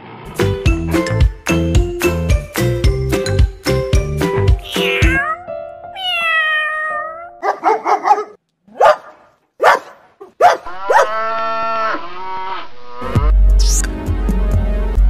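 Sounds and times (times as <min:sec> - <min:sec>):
kitten meowing: 0:04.6 - 0:07.4
dog barks: 0:07.4 - 0:11.2
cow mooing: 0:10.6 - 0:12.2.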